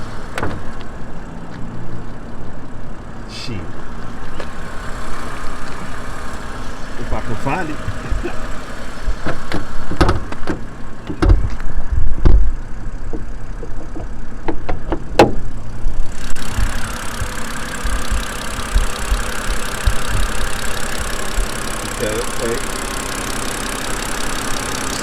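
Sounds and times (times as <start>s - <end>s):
car engine idling: 0.0s - 25.0s
steady rushing hiss: 16.0s - 25.0s.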